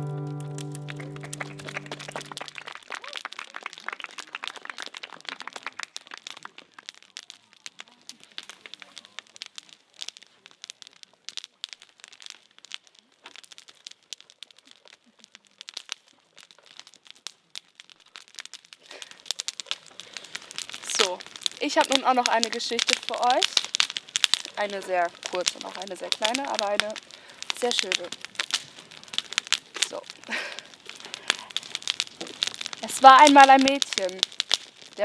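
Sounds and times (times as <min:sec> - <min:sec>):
strummed guitar chord: 0:00.0 - 0:02.4
fire crackling and popping: 0:00.0 - 0:35.0.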